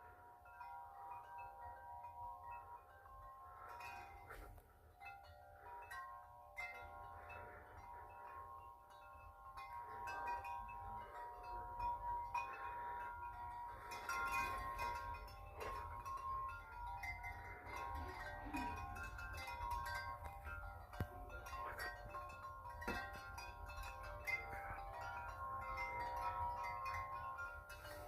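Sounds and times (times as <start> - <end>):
wind chime ringing: 0.0 - 28.0.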